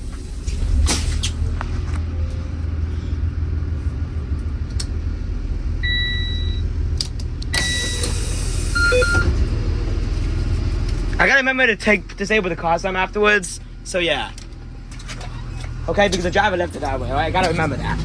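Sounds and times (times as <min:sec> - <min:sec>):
bus diesel engine idling: 0:00.0 - 0:18.0
beep: 0:05.8 - 0:06.6, 0:08.8 - 0:09.3.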